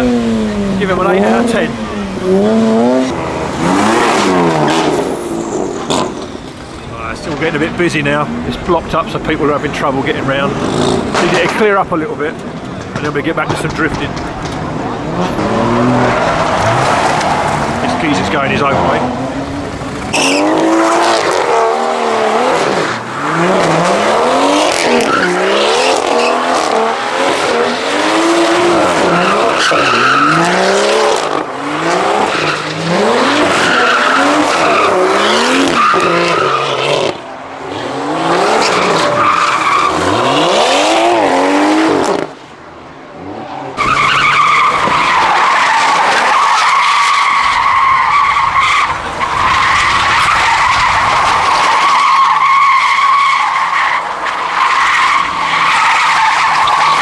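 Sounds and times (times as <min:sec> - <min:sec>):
car engine revving hard: 0:00.0 - 0:06.4, 0:07.3 - 0:42.4
tyres screeching: 0:00.0 - 0:57.0.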